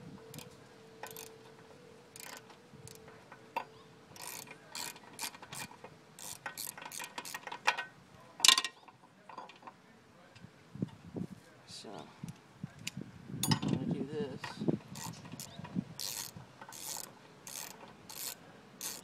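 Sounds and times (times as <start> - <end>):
ratchet wrench clicking: 0.3 - 1.3, 2.1 - 3.0, 4.2 - 7.7, 14.9 - 19.0.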